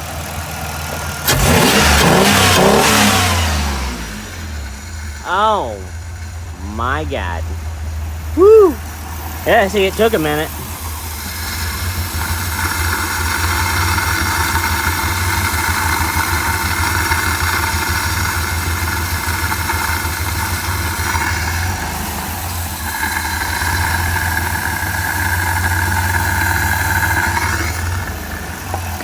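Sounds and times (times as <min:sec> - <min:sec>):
van engine idling: 0:00.0 - 0:29.0.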